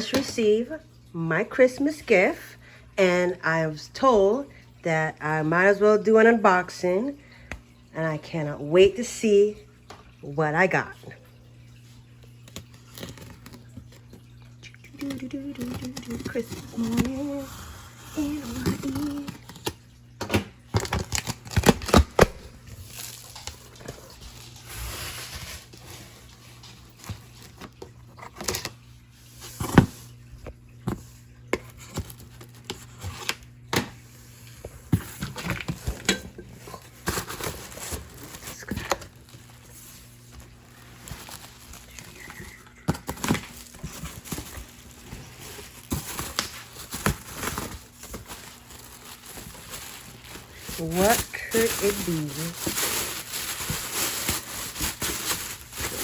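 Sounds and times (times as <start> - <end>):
crinkling rustles: 11.2 - 56.0
cardboard packaging being opened: 14.9 - 28.8, 34.8 - 56.0.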